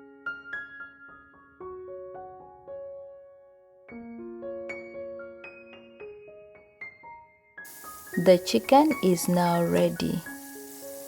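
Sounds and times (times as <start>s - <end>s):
soft piano notes: 7.7s - 11.0s.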